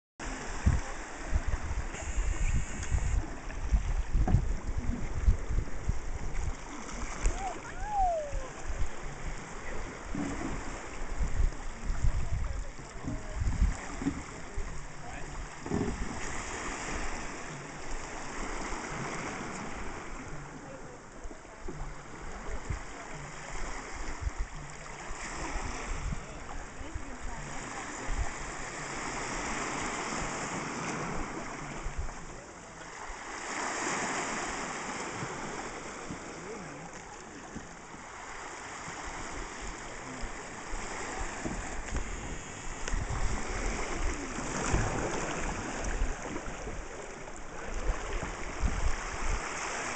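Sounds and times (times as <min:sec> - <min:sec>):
wind buffeting microphone: 0:00.2 - 0:20.0, 0:23.9 - 0:24.7, 0:39.0 - 0:49.9
water lapping around a canoe: 0:00.2 - 0:49.9.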